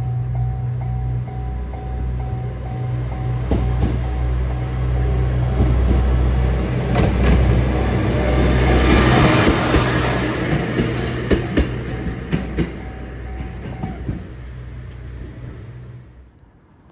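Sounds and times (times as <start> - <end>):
diesel train engine rumble: 0.0 - 16.7
train wheel clicks: 5.5 - 14.3.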